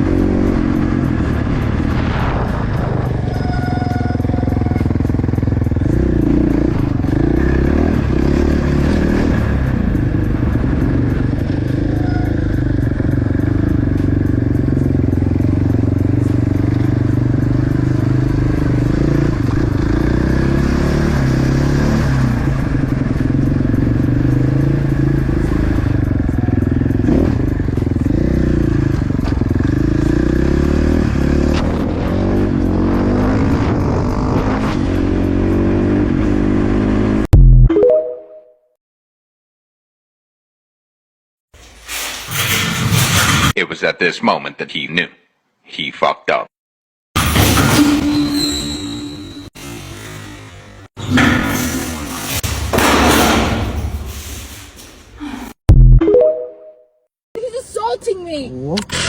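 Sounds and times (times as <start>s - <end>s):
motorcycle engine running: 0.0s - 37.2s.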